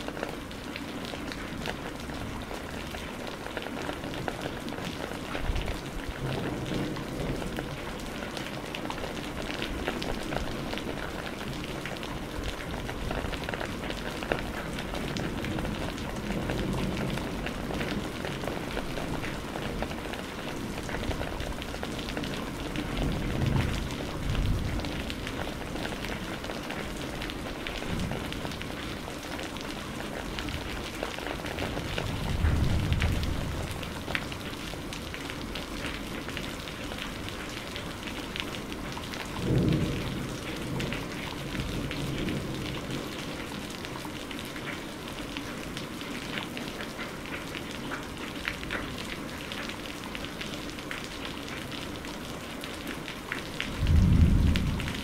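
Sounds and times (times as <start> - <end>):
heavy rain pattering: 0.0 - 55.0
thunder rumbling: 30.3 - 34.4, 39.3 - 43.2, 53.7 - 55.0.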